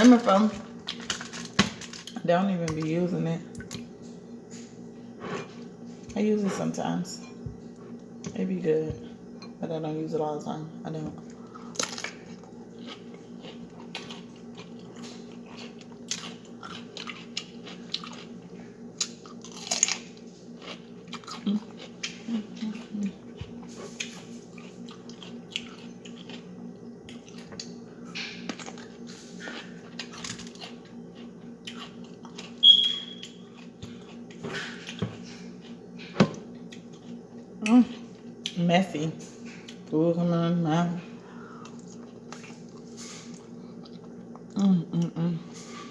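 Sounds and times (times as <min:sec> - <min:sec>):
steady low hum: 0:00.0 - 0:45.9
person chewing food: 0:11.2 - 0:38.6, 0:39.4 - 0:39.9, 0:41.3 - 0:45.1.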